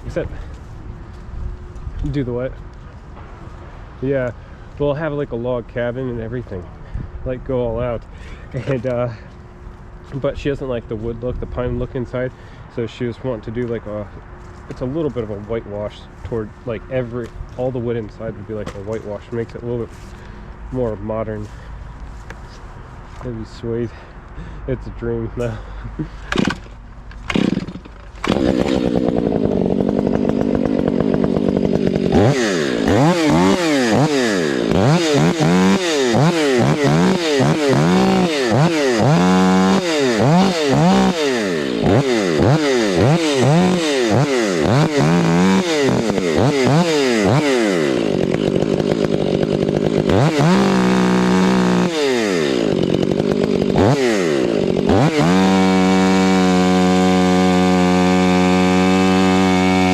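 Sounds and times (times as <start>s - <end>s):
chainsaw engine revving: 25.4s - 59.9s.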